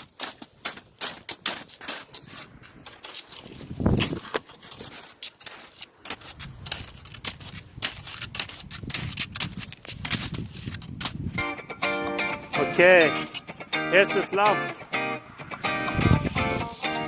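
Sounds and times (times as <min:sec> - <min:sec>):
skis scraping on snow: 0:00.0 - 0:11.0.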